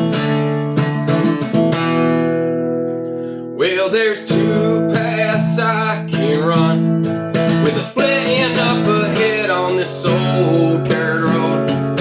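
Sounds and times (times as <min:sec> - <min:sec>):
acoustic guitar strumming: 0:00.0 - 0:12.0
person singing: 0:03.6 - 0:06.9, 0:07.6 - 0:12.0.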